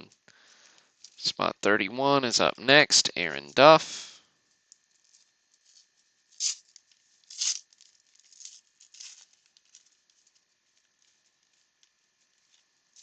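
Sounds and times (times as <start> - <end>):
wrapper tearing and crinkling: 5.0 - 11.9.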